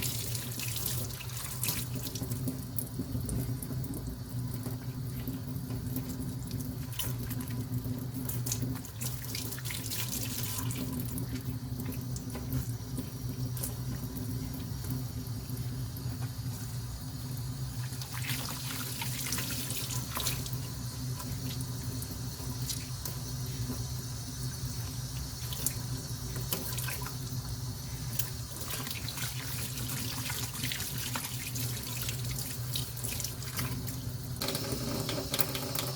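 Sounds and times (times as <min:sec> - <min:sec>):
tap water running into sink: 0:00.0 - 0:35.9
small clicks and splashes: 0:25.4 - 0:27.2.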